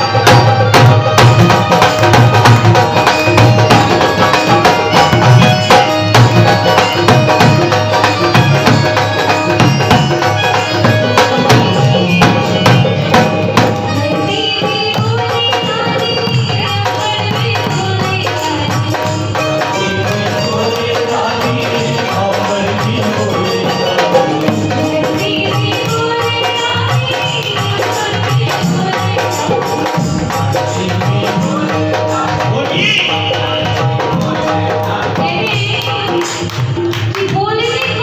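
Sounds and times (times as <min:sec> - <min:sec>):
instrumental melody: 0:00.0 - 0:28.0
tabla drumming: 0:00.0 - 0:38.0.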